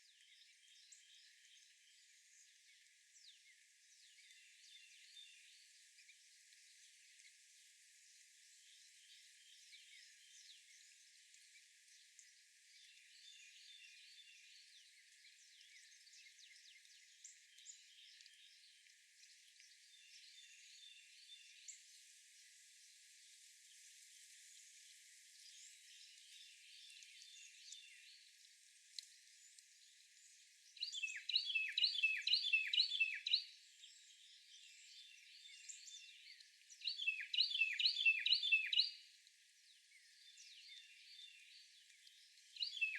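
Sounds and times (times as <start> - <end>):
faint bird chirps: 29.2 - 39.1, 39.8 - 42.9
songbird singing loud phrase: 30.8 - 33.6, 34.9 - 39.0, 42.6 - 42.9.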